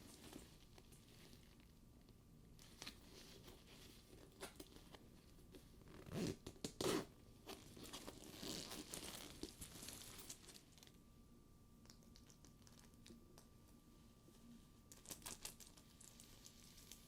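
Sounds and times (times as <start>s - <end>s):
leather rubbing and rustling: 5.8s - 10.6s.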